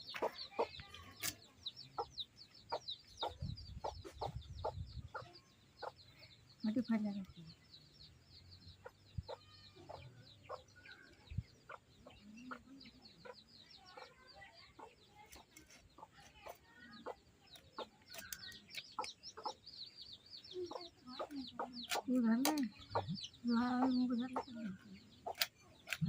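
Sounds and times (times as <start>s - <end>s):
chickens clucking: 0.0s - 7.0s, 8.7s - 26.0s
chickens chirping: 0.0s - 26.0s.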